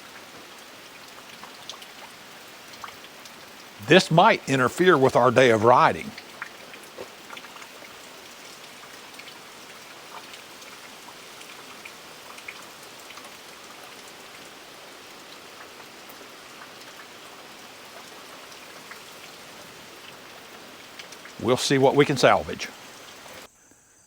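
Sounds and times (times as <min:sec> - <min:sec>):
steady rain falling: 0:00.0 - 0:23.5.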